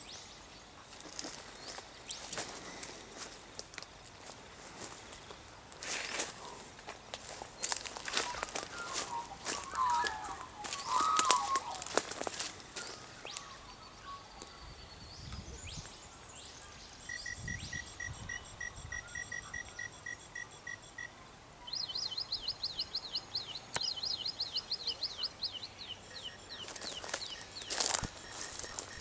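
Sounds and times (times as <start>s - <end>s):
electronic chirp: 17.0s - 29.0s.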